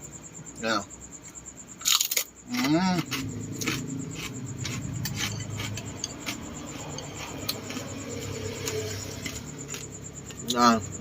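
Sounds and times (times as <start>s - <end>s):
chewing with crunches: 1.8s - 10.6s.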